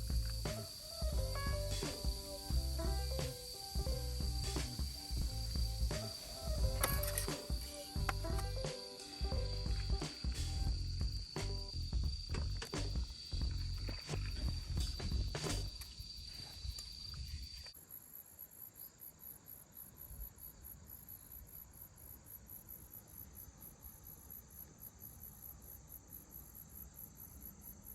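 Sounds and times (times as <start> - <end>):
night insects trilling: 0.0 - 27.9.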